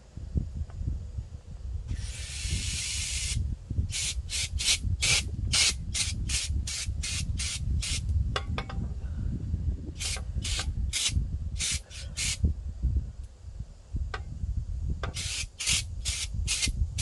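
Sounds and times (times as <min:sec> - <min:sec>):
pressurised spray hissing: 0:01.9 - 0:08.0, 0:10.0 - 0:12.4, 0:15.1 - 0:17.0.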